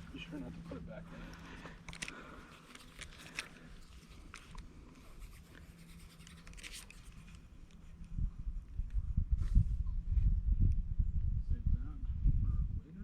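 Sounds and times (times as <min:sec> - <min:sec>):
low steady hum: 0:00.0 - 0:13.0
faint scratching: 0:02.6 - 0:08.0.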